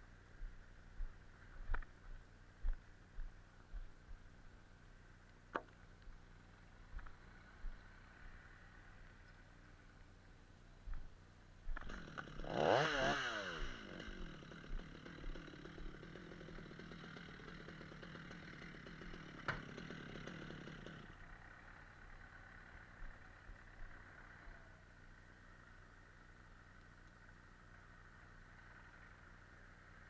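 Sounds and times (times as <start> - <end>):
chainsaw revving: 6.3 - 9.2, 11.7 - 25.2.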